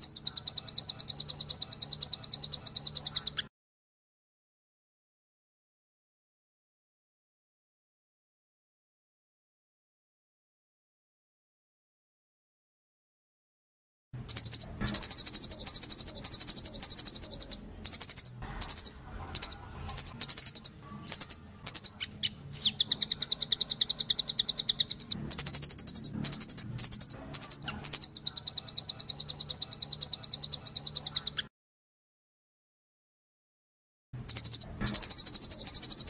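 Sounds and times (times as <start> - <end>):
nuthatch rattling trills: 0.0 - 3.4, 14.3 - 31.5, 34.2 - 36.0.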